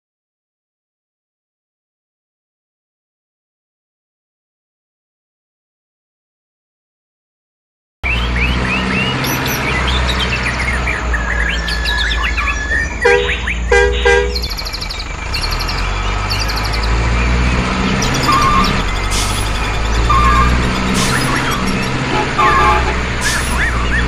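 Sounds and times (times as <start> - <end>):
birds chirping and tweeting: 8.0 - 24.0
short horn toots: 13.0 - 14.5, 20.1 - 24.0.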